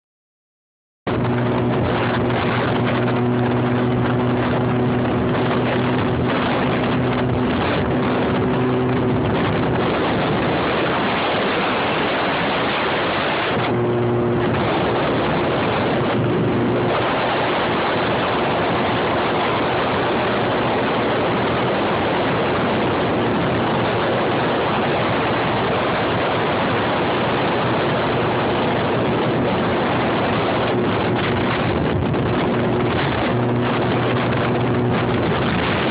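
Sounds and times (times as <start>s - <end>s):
wind rushing over microphone: 1.1s - 35.9s.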